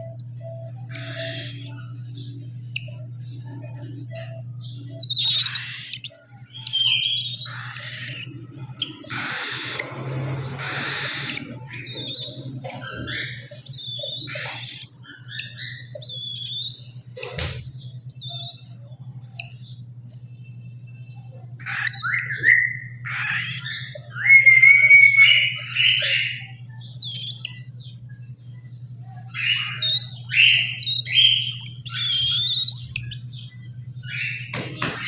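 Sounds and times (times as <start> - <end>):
steady low hum: 0.0 - 35.0
cockatiel chirping: 4.9 - 19.6, 21.6 - 27.6, 29.1 - 33.4, 34.0 - 35.0.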